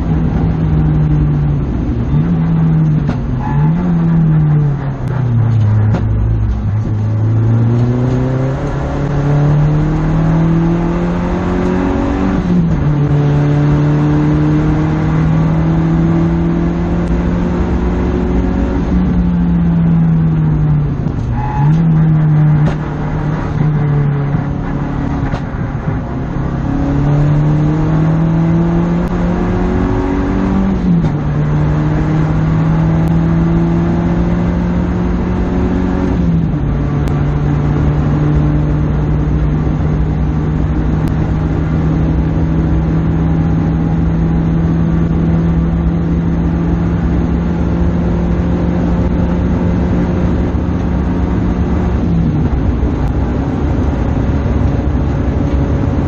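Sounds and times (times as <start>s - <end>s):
car engine accelerating in cabin: 0.0s - 56.0s.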